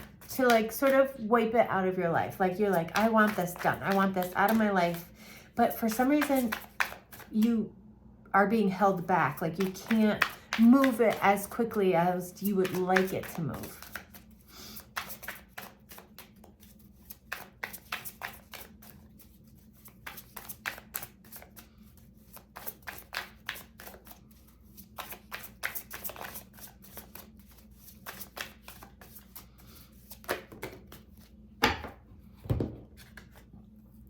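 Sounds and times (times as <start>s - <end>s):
cards being shuffled: 2.3s - 5.1s, 5.7s - 7.4s, 9.3s - 11.6s, 12.4s - 31.4s, 32.9s - 33.5s.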